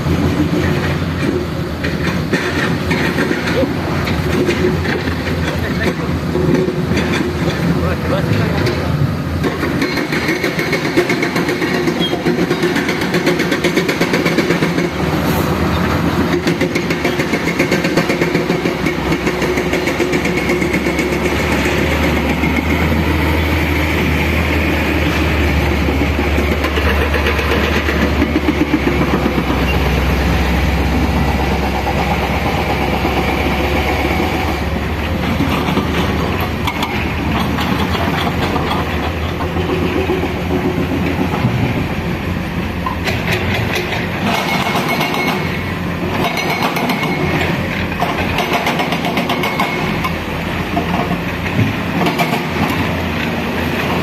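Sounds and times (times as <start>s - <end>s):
low diesel engine rumble: 0.0s - 54.0s
machinery clatter: 0.0s - 54.0s.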